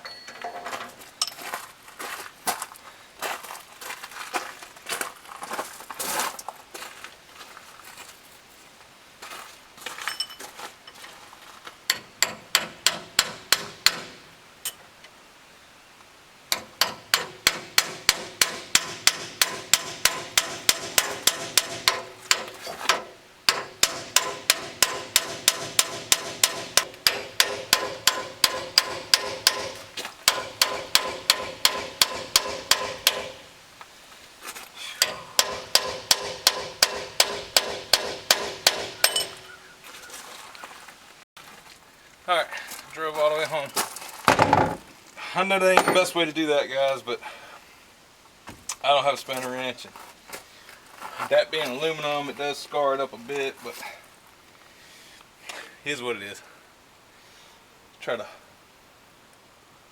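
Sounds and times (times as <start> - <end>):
hammer blows on metal: 11.9 - 14.4, 16.5 - 33.6, 34.9 - 39.6.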